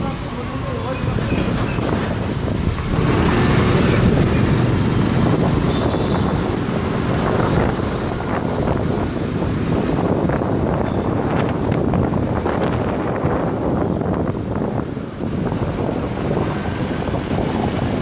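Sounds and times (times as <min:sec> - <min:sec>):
road noise: 0:00.0 - 0:18.0
wind buffeting microphone: 0:00.8 - 0:18.0
motorcycle engine: 0:01.4 - 0:10.0.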